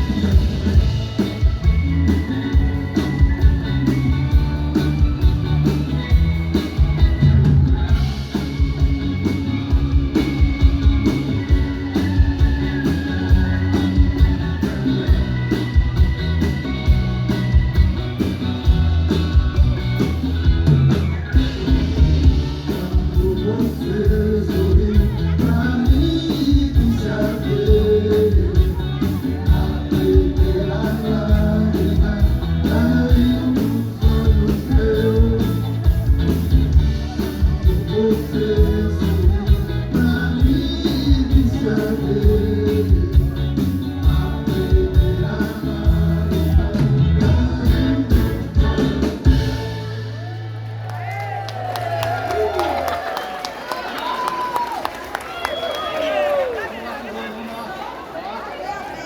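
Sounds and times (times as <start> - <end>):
live rock band playing: 0.0 - 56.8
person singing: 21.3 - 50.3.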